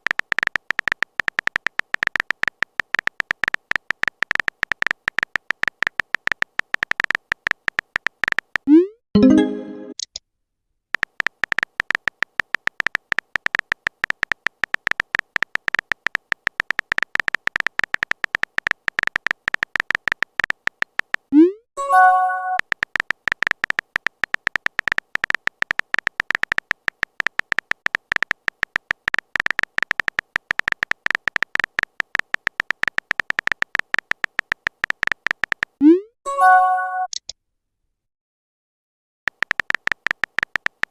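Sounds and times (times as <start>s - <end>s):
phone keyboard typing clicks: 0.0s - 10.2s, 10.9s - 21.3s, 22.0s - 35.8s, 39.3s - 40.9s
notification chime: 9.2s - 10.0s, 21.8s - 22.6s, 36.3s - 37.1s.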